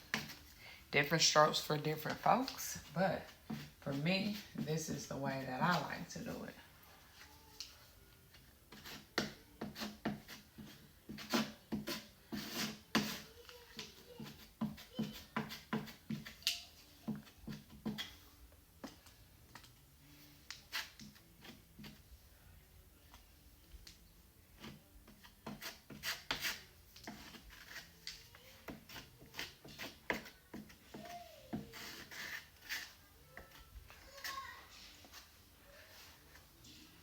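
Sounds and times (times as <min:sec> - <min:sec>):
scraping joint compound on drywall: 0:02.1 - 0:06.3, 0:08.7 - 0:22.2, 0:23.1 - 0:37.0.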